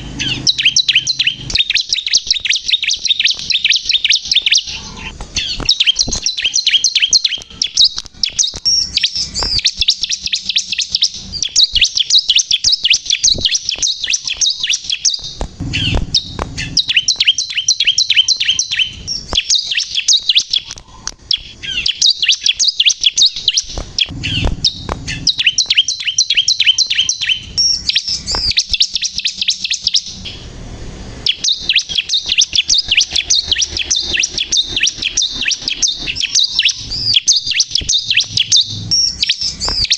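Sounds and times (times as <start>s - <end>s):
bird singing fast high chirps: 0.0s - 39.9s
low thumps: 15.3s - 17.3s, 23.8s - 25.5s.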